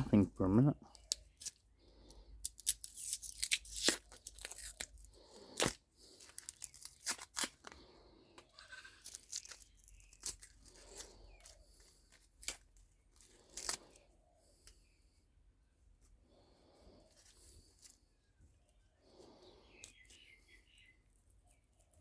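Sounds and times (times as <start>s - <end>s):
tearing and scraping metal parts: 1.0s - 15.0s.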